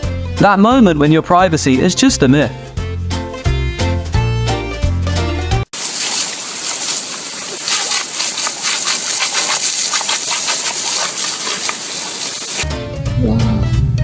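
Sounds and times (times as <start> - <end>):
rushing hissing water: 5.7 - 12.6.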